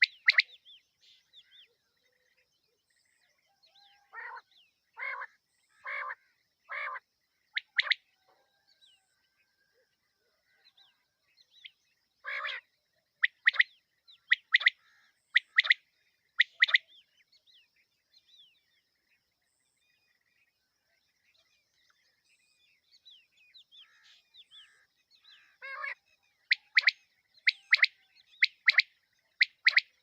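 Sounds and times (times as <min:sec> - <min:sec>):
quail calling: 0:00.0 - 0:00.6, 0:03.9 - 0:04.4, 0:05.0 - 0:08.1, 0:12.2 - 0:13.7, 0:14.3 - 0:15.8, 0:16.4 - 0:16.8, 0:23.8 - 0:30.0
small birds chirping: 0:00.0 - 0:30.0.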